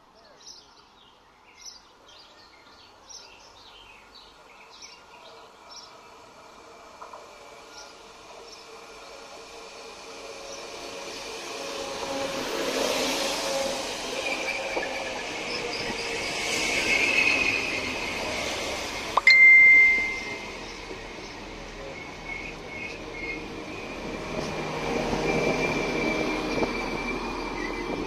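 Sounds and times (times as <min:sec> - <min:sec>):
diesel train passing: 0:02.9 - 0:28.0
loud high-pitched tone: 0:19.2 - 0:20.6
wheel squeal: 0:25.1 - 0:28.0.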